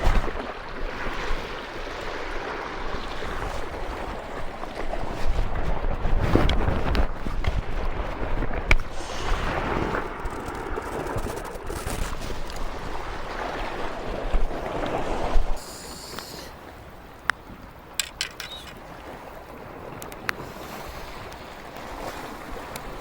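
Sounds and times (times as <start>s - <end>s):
surf on rocky shore: 0.0s - 23.0s
wind buffeting microphone: 2.2s - 15.6s.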